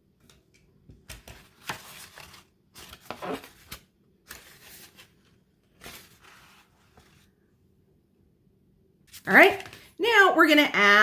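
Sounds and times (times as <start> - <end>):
paper rustling and crinkling: 1.0 - 7.3.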